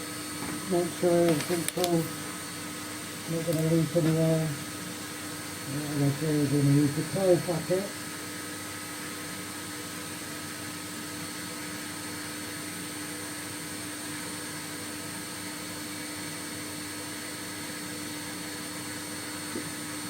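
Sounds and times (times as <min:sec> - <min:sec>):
vacuum motor whining: 0:00.6 - 0:07.9.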